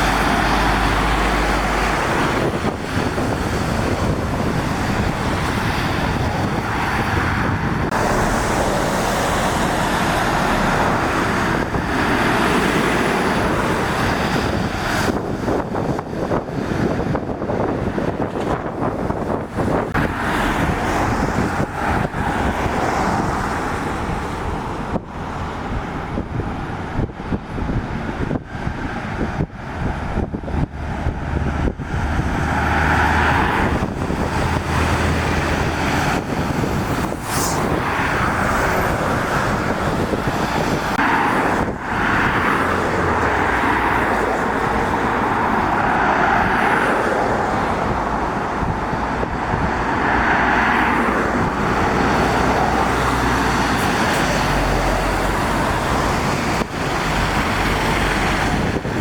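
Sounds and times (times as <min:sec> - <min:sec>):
tyres hissing on wet road: 0:00.0 - 0:15.2, 0:32.4 - 0:49.2, 0:49.9 - 0:59.0
heavy truck engine drone: 0:00.0 - 0:59.0
vehicles passing on wet road: 0:00.0 - 0:59.0.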